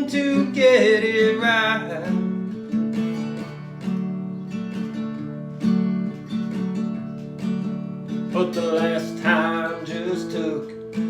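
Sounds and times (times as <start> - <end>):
person singing: 0.0 - 2.3, 8.3 - 11.0
acoustic guitar strumming: 0.0 - 11.0.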